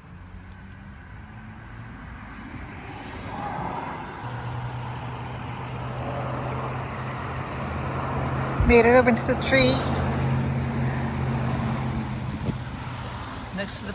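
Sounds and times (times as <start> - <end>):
road traffic: 0.0 - 13.9
steady low hum: 4.2 - 13.9.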